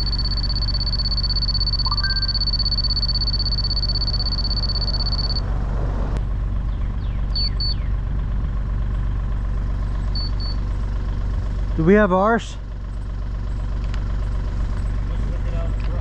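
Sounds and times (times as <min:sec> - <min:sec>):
laser level high tone: 0:00.0 - 0:05.4
short double beeps: 0:00.0 - 0:05.4, 0:10.2 - 0:10.6
heavy equipment engine idling: 0:00.0 - 0:16.0.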